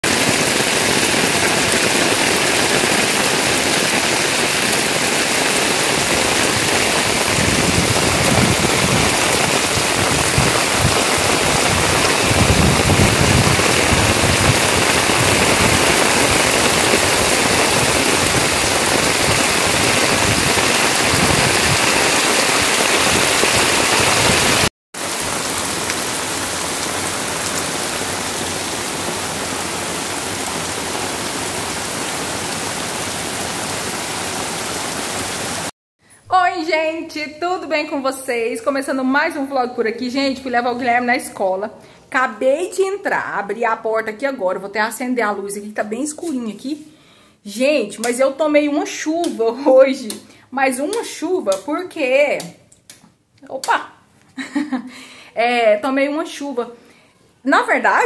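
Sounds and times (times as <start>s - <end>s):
heavy rain on pavement: 0.0s - 35.7s.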